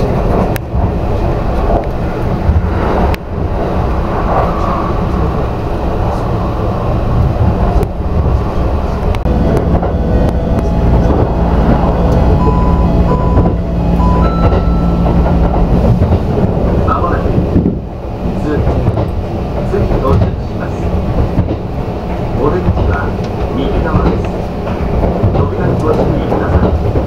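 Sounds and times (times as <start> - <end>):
train wheels rumbling: 0.0 - 27.0
steady low hum: 7.1 - 17.8
short beeping tones: 11.9 - 15.5.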